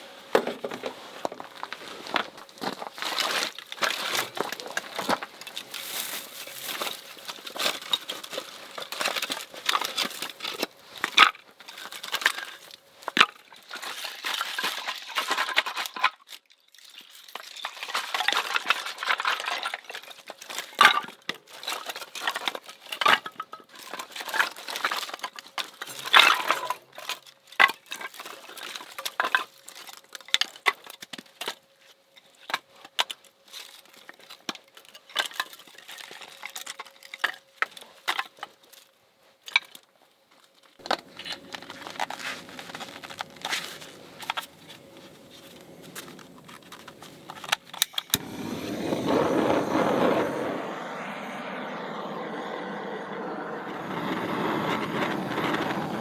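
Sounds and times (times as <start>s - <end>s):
rustling: 40.8s - 48.2s.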